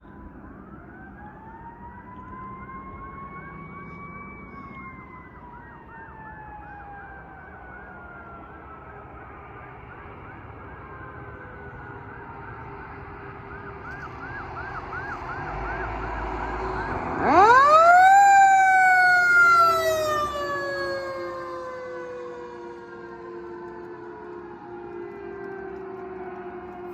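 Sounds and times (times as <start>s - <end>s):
electronic siren yelping: 10.2s - 25.8s.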